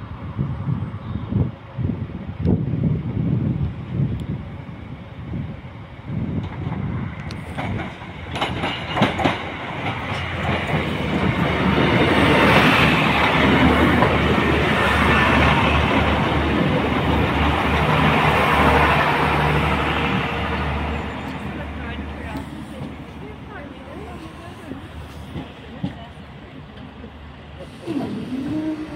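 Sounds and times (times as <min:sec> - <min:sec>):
diesel train engine hum: 0:00.0 - 0:28.9
wheels clattering on rails: 0:06.4 - 0:16.3.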